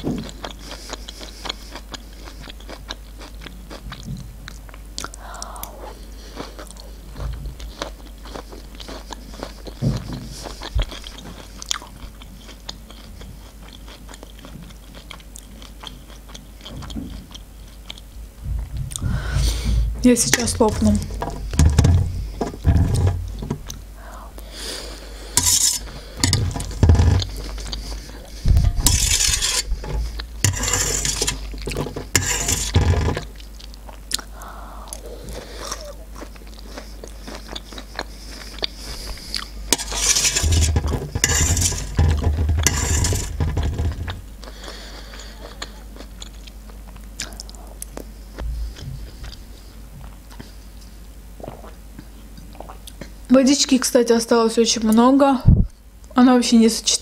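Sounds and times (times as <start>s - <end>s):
close chewing: 0.2s - 18.1s, 33.2s - 40.0s
fork scraping on metal tray: 20.3s - 23.3s, 25.4s - 27.6s, 28.6s - 33.3s, 39.7s - 44.2s.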